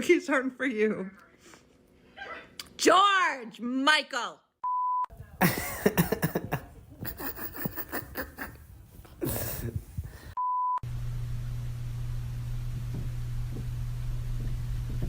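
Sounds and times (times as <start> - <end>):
steady beep tone: 4.6 - 5.1
steady low hum: 5.1 - 15.0.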